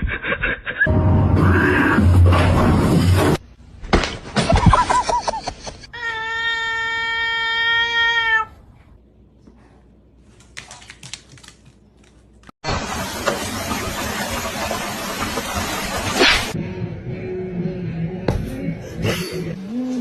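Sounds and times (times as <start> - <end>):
cat crying: 6.0 - 8.6.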